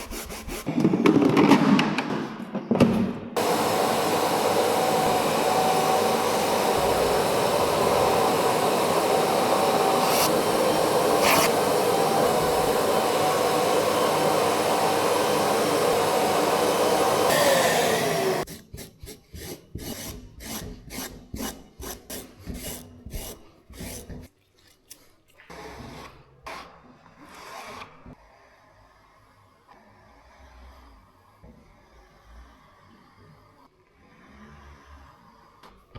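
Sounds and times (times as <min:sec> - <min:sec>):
cleaning machine motor whining: 0:03.4 - 0:18.5.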